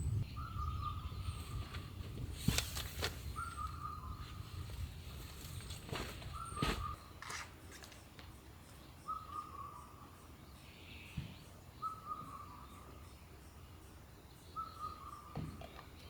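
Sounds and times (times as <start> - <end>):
bird calling: 0.0 - 2.0, 3.2 - 4.8, 5.4 - 7.4, 9.0 - 13.0, 14.5 - 16.0.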